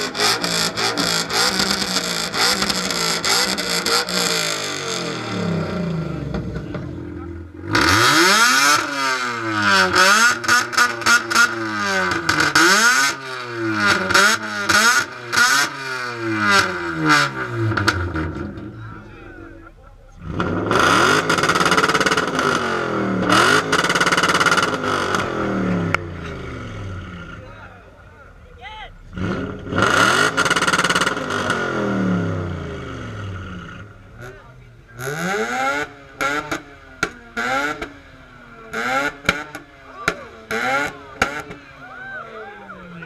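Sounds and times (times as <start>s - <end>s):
car engine revving: 0.0s - 43.0s
exhaust pops: 19.6s - 27.4s.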